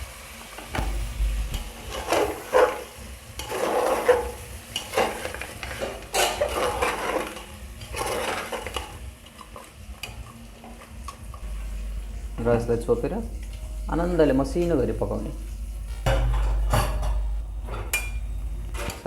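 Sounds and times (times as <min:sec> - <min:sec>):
low sizzle of frying: 0:00.0 - 0:19.0
spoon scraping a pot: 0:01.9 - 0:10.2.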